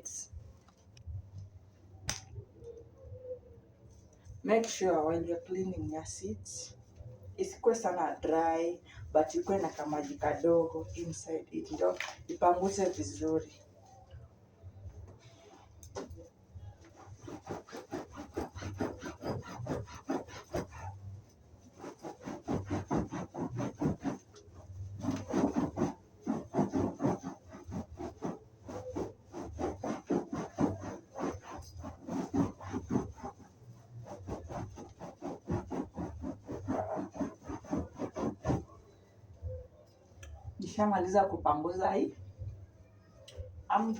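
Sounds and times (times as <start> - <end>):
sponge rubbing upholstery: 9.2 - 13.2, 15.2 - 38.8.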